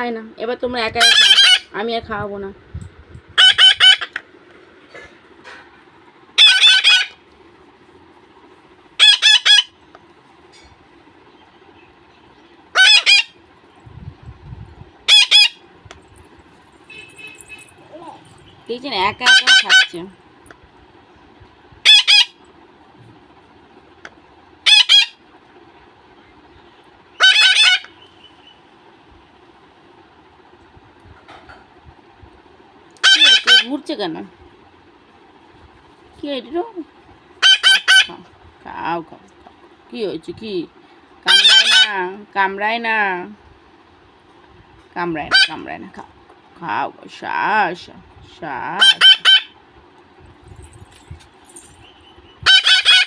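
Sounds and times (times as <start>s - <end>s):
parrot chicks shrill calls: 1.0s - 1.8s, 3.4s - 4.2s, 6.4s - 7.2s, 9.0s - 9.8s, 12.7s - 13.4s, 15.1s - 15.6s, 21.8s - 22.4s, 24.6s - 25.2s, 27.1s - 28.6s, 33.0s - 33.7s, 37.4s - 38.2s, 41.3s - 42.0s, 48.8s - 49.6s, 51.6s - 53.0s.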